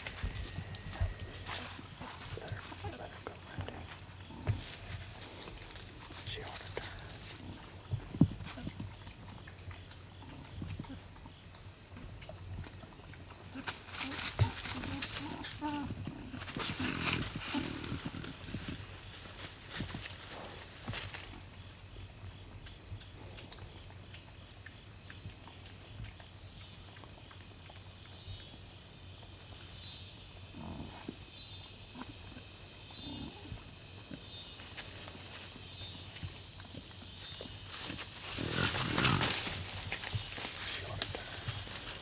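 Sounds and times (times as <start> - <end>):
rustling: 0.0 - 10.0, 13.6 - 21.6, 34.6 - 42.0
insect chorus drone: 0.0 - 42.0
hogs grunting: 13.5 - 19.0, 30.5 - 31.2, 32.0 - 33.7, 38.2 - 42.0.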